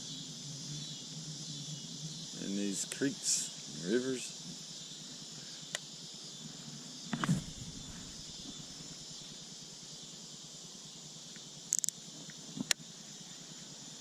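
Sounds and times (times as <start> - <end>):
insects chirping: 0.0 - 14.0
sharp clicks: 11.7 - 12.0.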